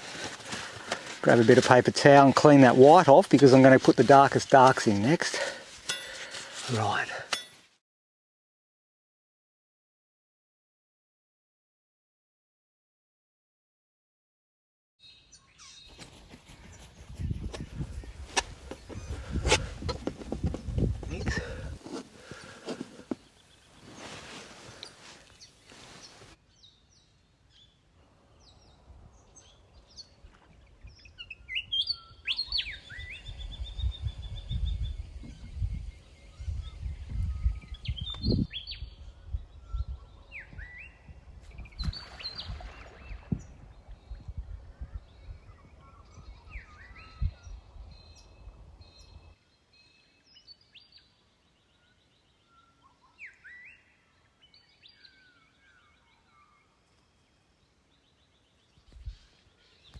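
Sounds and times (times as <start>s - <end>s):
wild birds chirping and whistling: 30.9s - 49.2s.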